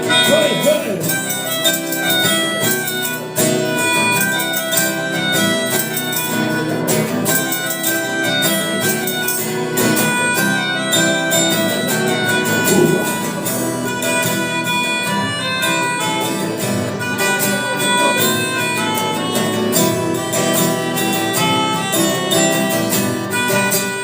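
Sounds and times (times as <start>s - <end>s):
rock band playing instrumental: 0.0s - 24.0s.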